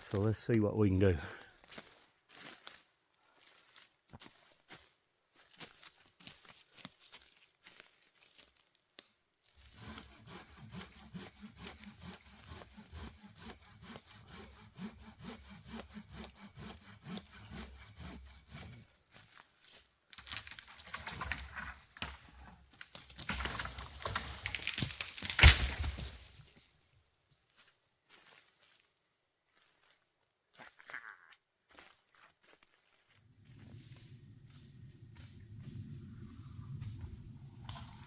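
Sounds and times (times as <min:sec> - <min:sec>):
hand saw cutting wood: 0:09.6 - 0:18.9
wood cracking: 0:20.1 - 0:26.5.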